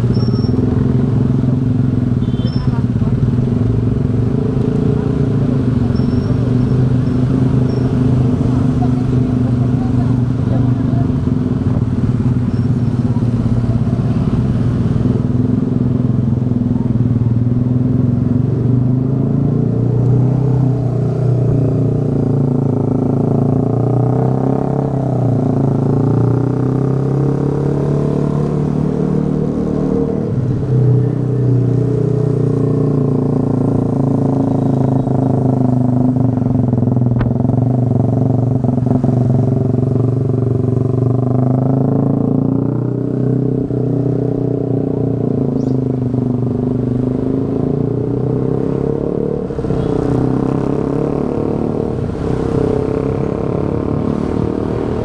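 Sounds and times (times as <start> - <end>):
motorbike engine running: 20.2 - 42.8.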